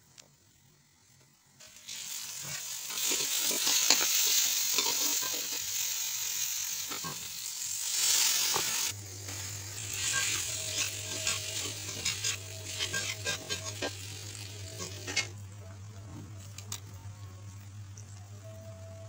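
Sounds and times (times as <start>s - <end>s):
low steady hum: 0.0s - 19.0s
masala sizzling in oil: 1.6s - 15.5s.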